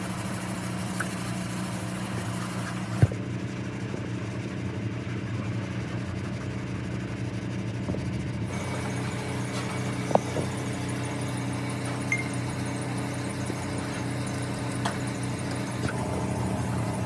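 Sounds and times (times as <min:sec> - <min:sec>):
car engine idling: 0:08.5 - 0:17.0.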